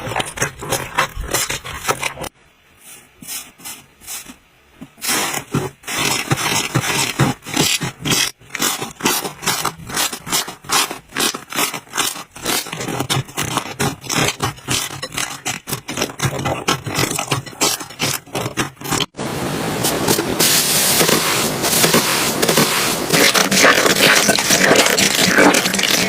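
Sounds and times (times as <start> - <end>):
steady hiss: 19.2 - 23.1.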